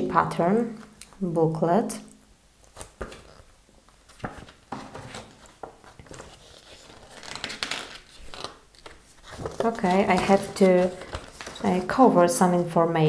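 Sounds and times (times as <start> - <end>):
paper rustling and crinkling: 4.0 - 12.2.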